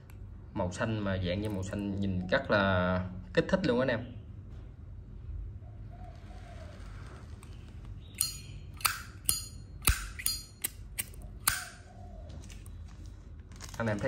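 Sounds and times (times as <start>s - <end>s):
lighter lid clacking: 8.2s - 11.7s.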